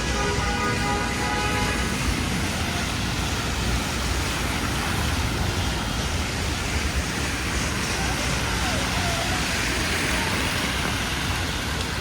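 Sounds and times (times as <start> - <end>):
passing vehicles rumbling: 0.0 - 12.0
rain and traffic hiss: 0.0 - 12.0.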